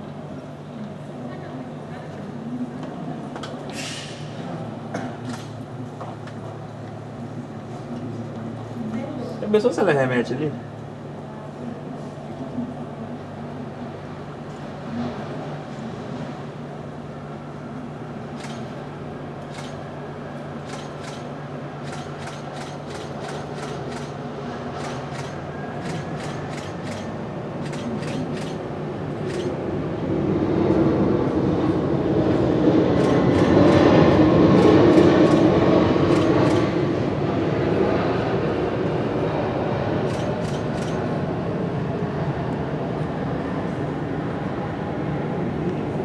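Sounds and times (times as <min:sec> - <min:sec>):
jet engine noise: 0:13.8 - 0:46.0.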